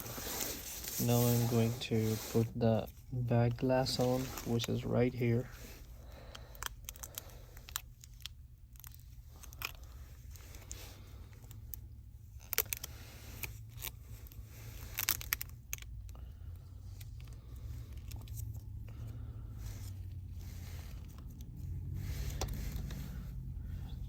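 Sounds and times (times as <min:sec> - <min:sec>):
steady low hum: 0:00.0 - 0:24.0
film crinkling and tearing: 0:12.4 - 0:15.8.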